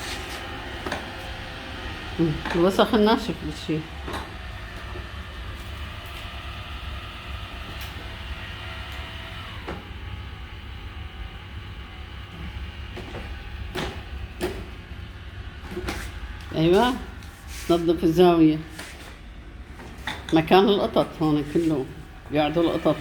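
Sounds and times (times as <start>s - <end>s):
robot vacuum whirring hum: 0.0s - 23.0s.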